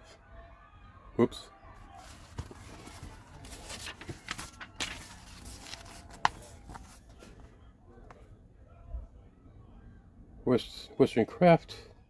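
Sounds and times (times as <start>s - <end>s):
paper rustling: 1.8s - 7.6s.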